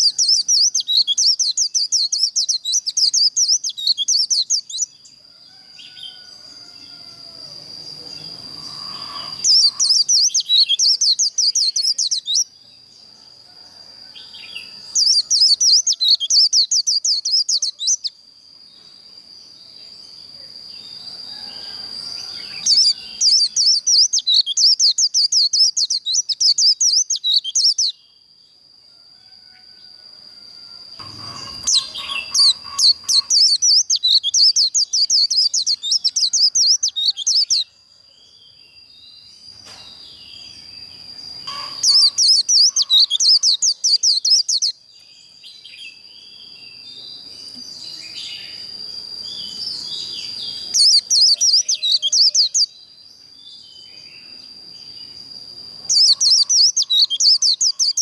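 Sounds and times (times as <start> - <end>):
bird twittering song: 0.0 - 5.2, 7.7 - 13.0, 14.3 - 18.2, 20.8 - 28.2, 31.0 - 37.7, 38.5 - 58.0
thin high tone: 31.0 - 33.4.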